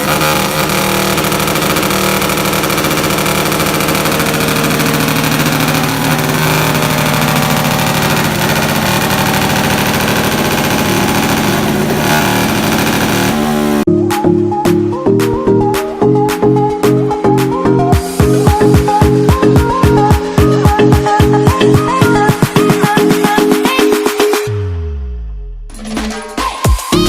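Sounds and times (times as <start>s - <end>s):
motor vehicle engine: 0.0s - 13.9s, 15.3s - 23.3s.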